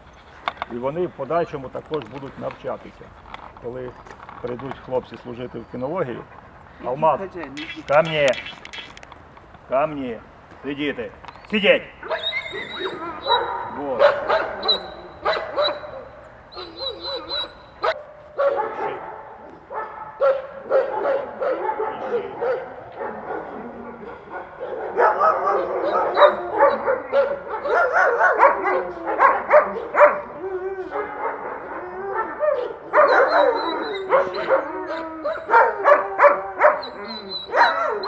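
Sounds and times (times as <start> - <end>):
dog barking and whining: 12.0 - 38.0.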